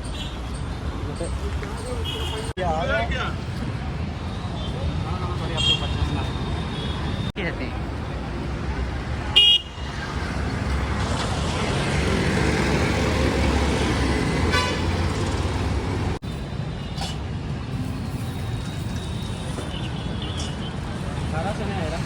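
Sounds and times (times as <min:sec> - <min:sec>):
road traffic rumbling: 0:00.0 - 0:22.0
vehicle horn toot: 0:14.5 - 0:14.9.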